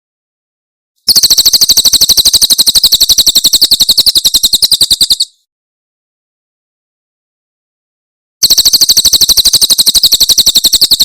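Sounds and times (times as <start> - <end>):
bird trilling: 2.6 - 5.4.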